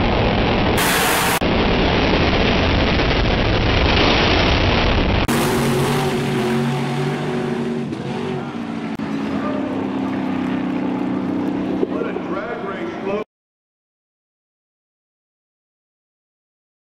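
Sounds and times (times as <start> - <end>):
drag racing engines blasting: 0.7 - 1.4, 5.2 - 13.2
engines humming at low speed: 5.3 - 13.2.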